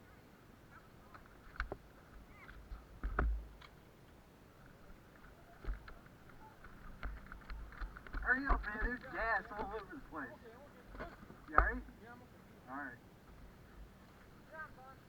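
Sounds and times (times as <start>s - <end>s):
sharp knocks and thumps: 3.0s - 3.7s, 6.9s - 9.8s, 11.0s - 11.9s.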